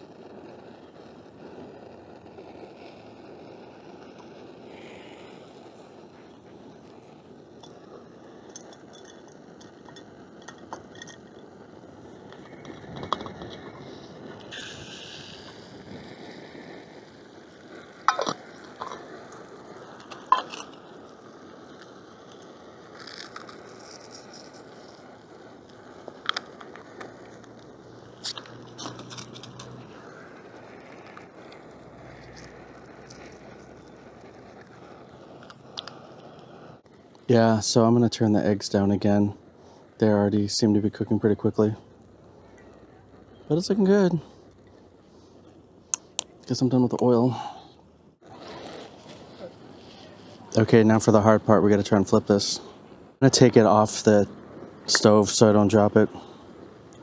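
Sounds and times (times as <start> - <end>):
eggs frying hiss: 0.0 - 57.0
utensil clinking against pan: 18.1 - 19.1, 20.1 - 20.8.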